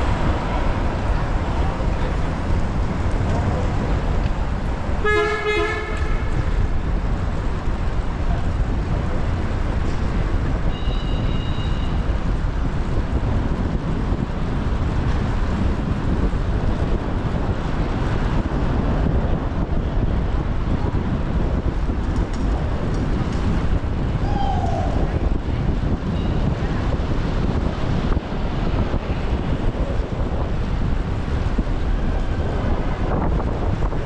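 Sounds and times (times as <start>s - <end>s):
city traffic rumble: 0.0s - 34.0s
wind on microphone: 0.0s - 34.0s
vehicle horn: 5.0s - 6.5s.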